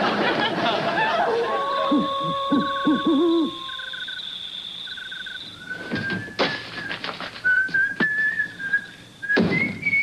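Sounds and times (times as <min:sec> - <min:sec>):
chirping trills: 0:01.2 - 0:06.8
owl hooting: 0:01.3 - 0:05.9
person whistling: 0:01.9 - 0:04.2, 0:05.6 - 0:10.0.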